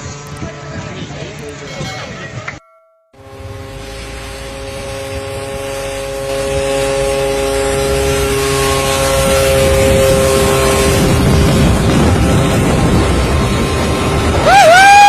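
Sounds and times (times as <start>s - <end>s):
light aircraft engine running: 0.0s - 2.6s, 3.2s - 15.0s.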